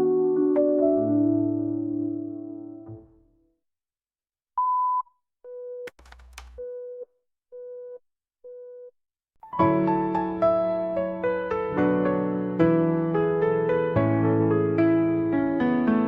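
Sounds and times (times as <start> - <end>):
piano chords: 0.0 - 3.2, 9.5 - 16.0.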